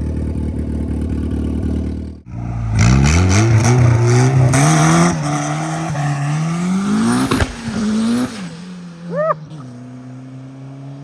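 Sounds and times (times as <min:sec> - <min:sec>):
car engine revving at full throttle: 0:02.3 - 0:11.0.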